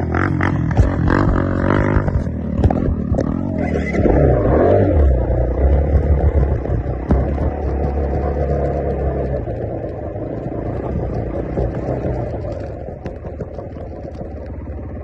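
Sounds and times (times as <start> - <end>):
vehicle engine droning and revving: 0.0 - 15.0.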